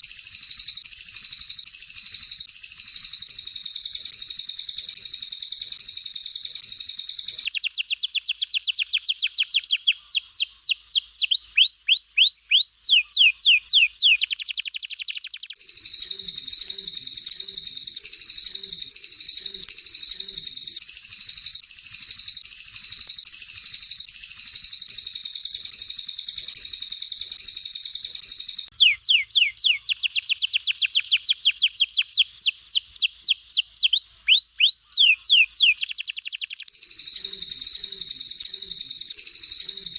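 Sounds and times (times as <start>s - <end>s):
high continuous bird trill: 0.0s - 39.9s
fast down-slurred bird whistles: 4.6s - 39.9s.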